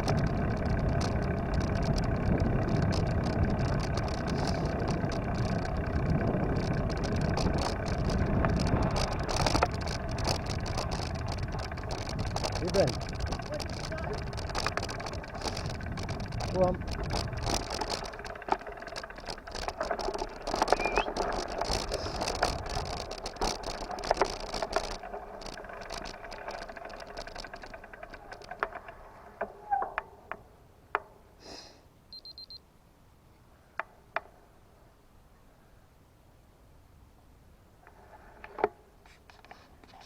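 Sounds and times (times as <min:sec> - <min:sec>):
bicycle wheel ticking: 0:00.0 - 0:29.5
bicycle riding rattle: 0:00.0 - 0:31.3, 0:37.8 - 0:40.0
clicks: 0:06.6 - 0:30.4
short electronic beep: 0:20.8 - 0:21.1, 0:32.1 - 0:32.6.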